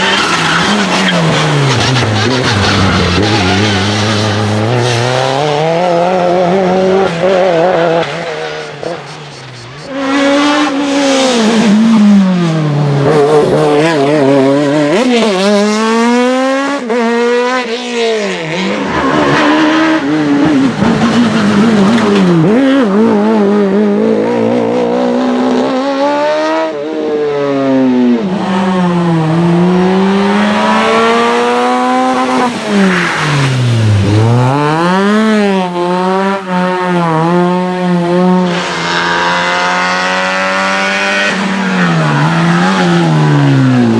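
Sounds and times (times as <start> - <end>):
tyres squealing: 0.0 - 6.6
race car engine revving: 0.0 - 43.9.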